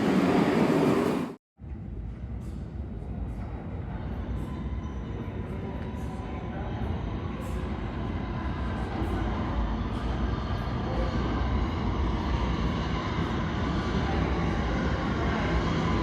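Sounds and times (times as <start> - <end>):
subway train rumbling: 0.0 - 16.0.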